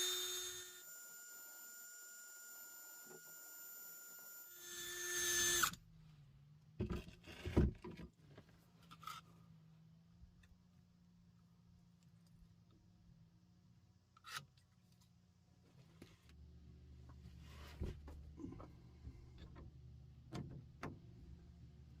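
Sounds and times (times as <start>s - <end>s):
power tool motor whine: 0.0s - 5.8s.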